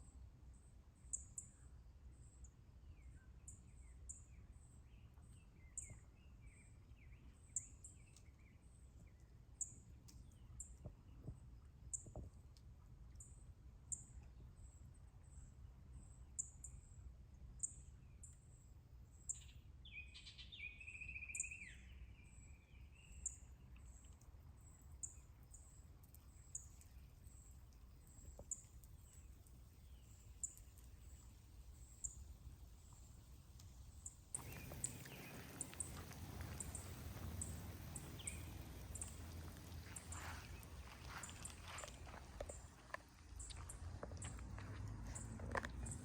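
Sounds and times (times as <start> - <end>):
steady hiss: 27.6 - 43.4
longer louder bird call: 34.4 - 41.8.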